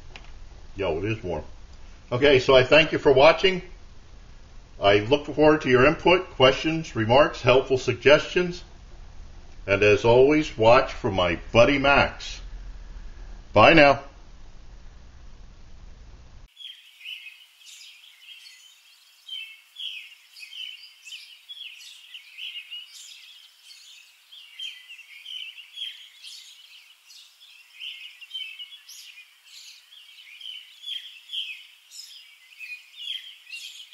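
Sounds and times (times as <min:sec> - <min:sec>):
birds chirping and trilling: 0:16.5 - 0:33.9.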